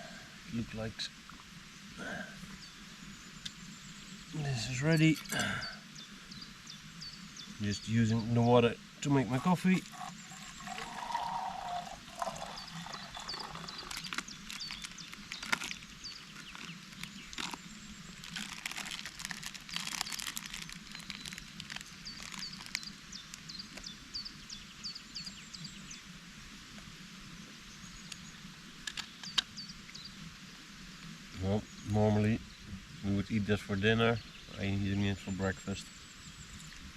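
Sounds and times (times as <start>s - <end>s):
small bird chirping: 9.0s - 25.9s.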